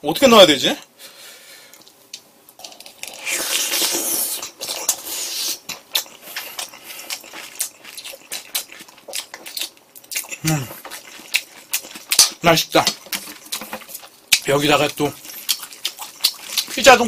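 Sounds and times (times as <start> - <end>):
close-miked chewing: 2.6 - 17.0.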